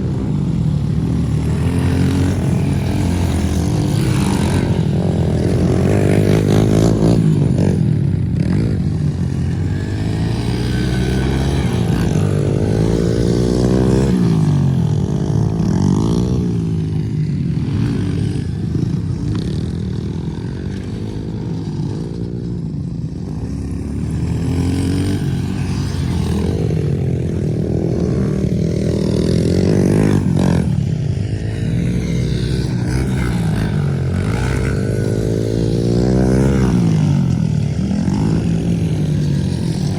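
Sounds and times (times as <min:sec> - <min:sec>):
pit bike engines revving: 0:00.0 - 0:39.9.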